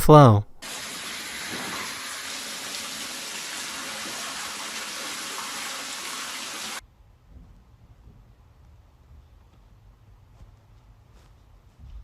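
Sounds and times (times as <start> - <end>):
water gushing from toilet: 0.6 - 6.8.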